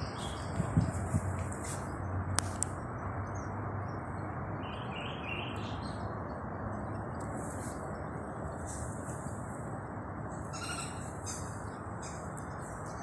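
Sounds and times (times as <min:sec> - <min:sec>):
birds chirping: 0:10.4 - 0:13.0.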